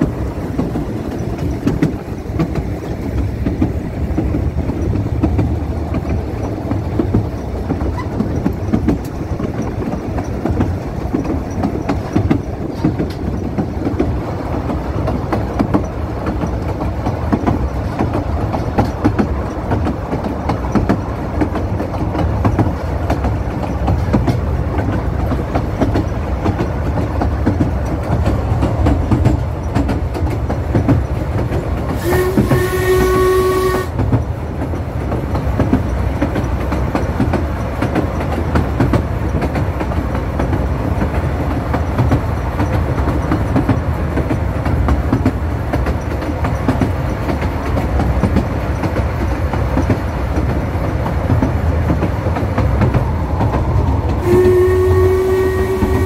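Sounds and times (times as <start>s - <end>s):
train running along the line: 0.0s - 56.0s
train whistle: 32.0s - 34.0s, 54.2s - 56.0s.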